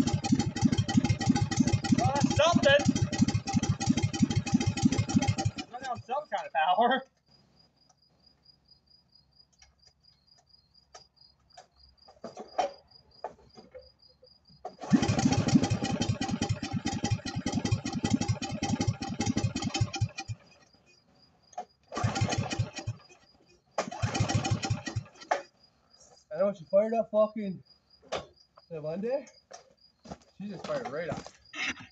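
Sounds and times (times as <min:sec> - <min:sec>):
garden tractor engine running: 0:00.0 - 0:06.6, 0:14.6 - 0:20.9, 0:21.9 - 0:25.5
crickets chirping: 0:00.2 - 0:31.9.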